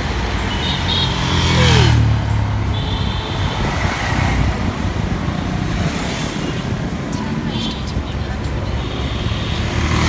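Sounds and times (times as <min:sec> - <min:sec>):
road traffic: 0:00.0 - 0:10.0
vehicle passing close: 0:00.0 - 0:10.0.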